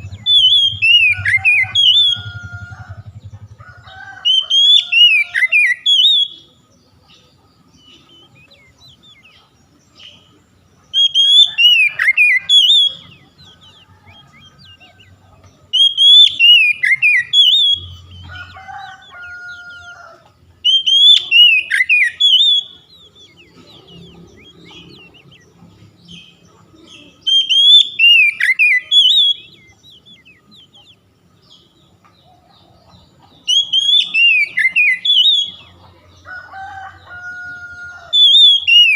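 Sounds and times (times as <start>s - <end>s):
lower two-part bird call: 0.0s - 3.5s
bird singing whistled phrase: 20.7s - 23.4s, 27.2s - 30.4s, 33.5s - 35.6s.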